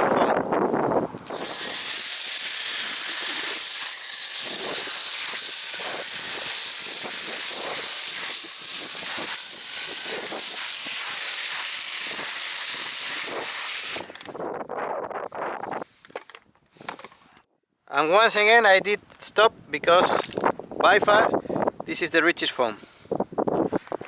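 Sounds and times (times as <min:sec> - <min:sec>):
pressure washer spraying foam: 0:01.2 - 0:14.4.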